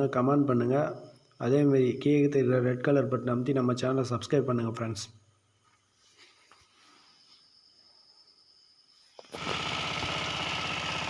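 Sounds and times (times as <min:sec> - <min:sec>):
diesel engine starting and running: 0:09.2 - 0:11.0.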